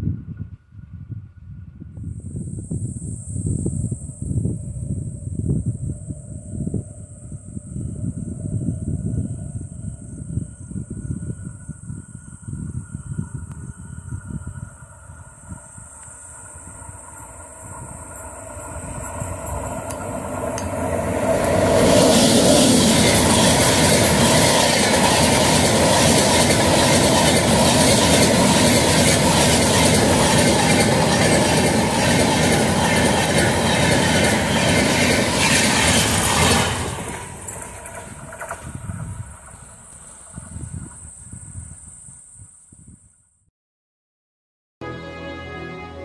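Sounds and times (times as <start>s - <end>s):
express train passing at speed: 4.3s - 41.2s
train wheels clickety-clack: 17.1s - 40.6s.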